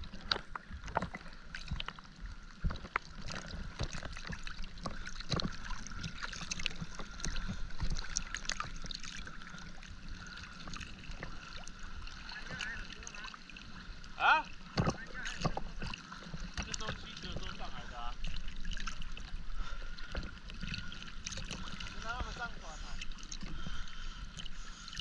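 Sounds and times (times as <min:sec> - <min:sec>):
water sloshing and splashing: 0:00.0 - 0:25.0.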